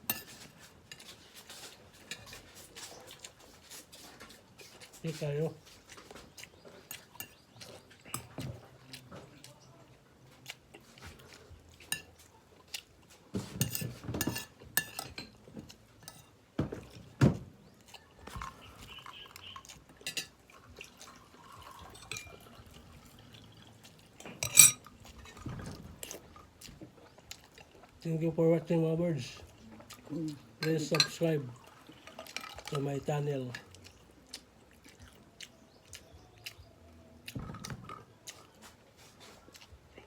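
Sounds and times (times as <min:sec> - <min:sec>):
utensils clinking on a plate: 0:00.0 - 0:02.6, 0:11.8 - 0:12.1, 0:13.4 - 0:16.8, 0:20.0 - 0:20.4, 0:21.4 - 0:22.7, 0:24.2 - 0:25.8, 0:30.6 - 0:31.4.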